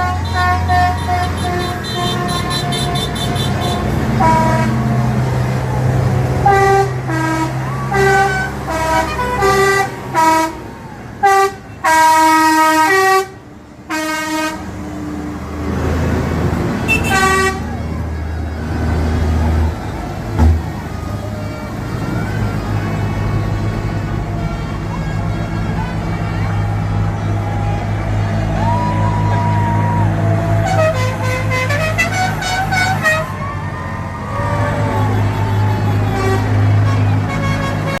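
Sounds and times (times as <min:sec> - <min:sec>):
vehicle horn tooting: 0:00.0 - 0:04.8, 0:06.4 - 0:10.6, 0:11.2 - 0:14.7, 0:16.8 - 0:17.8, 0:30.6 - 0:33.4, 0:35.0 - 0:38.0
low engine rumble: 0:00.0 - 0:38.0.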